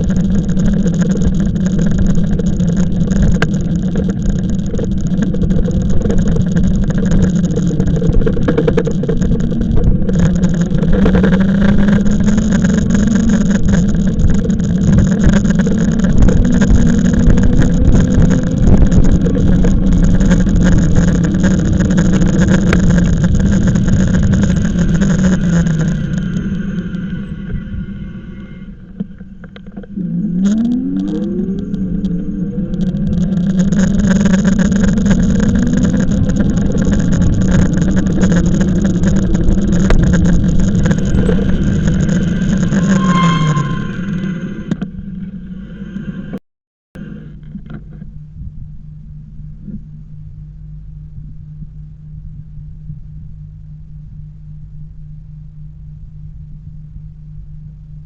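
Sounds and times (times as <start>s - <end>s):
wind buffeting microphone: 0.0s - 44.8s
electric motor hum: 0.0s - 45.4s
rising motor whine: 0.0s - 46.4s.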